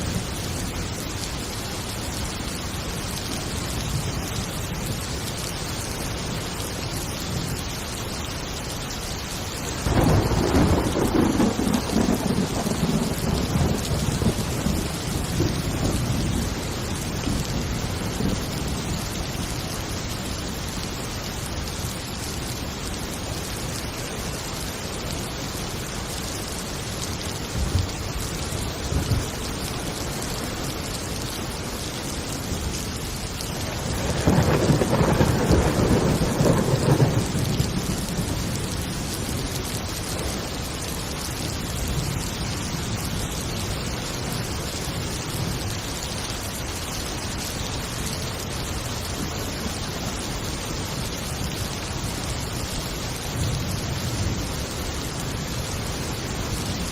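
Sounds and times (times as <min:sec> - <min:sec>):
heavy rain: 0:00.0 - 0:56.9
thunder rumbling: 0:09.8 - 0:19.2, 0:28.8 - 0:29.9, 0:33.5 - 0:39.2.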